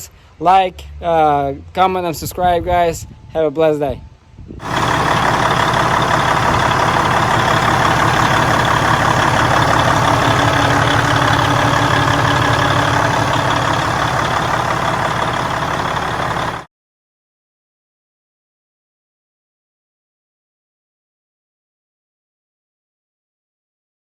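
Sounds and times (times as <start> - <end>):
diesel truck engine idling: 4.6 - 16.7.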